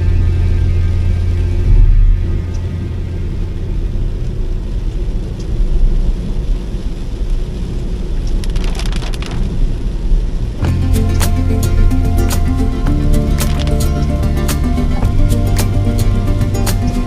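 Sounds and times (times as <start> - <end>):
vehicle rumbling on the road: 0.0 - 17.0
short crackling clicks: 8.2 - 9.6, 13.3 - 14.0.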